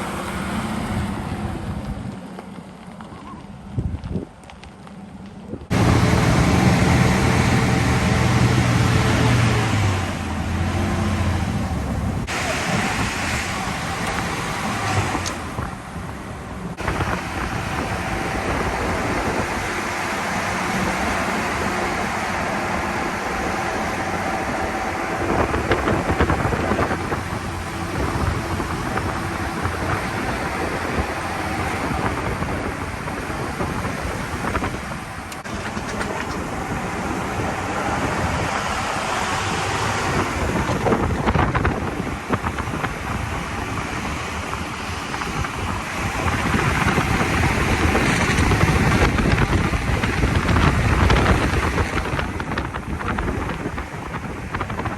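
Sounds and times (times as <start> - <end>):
tyre and wind noise: 0.0 - 54.9
car engine running: 4.5 - 54.9.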